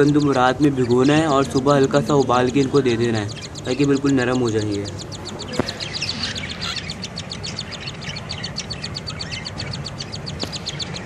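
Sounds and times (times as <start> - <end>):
birds chirping raspily: 0.0 - 11.0.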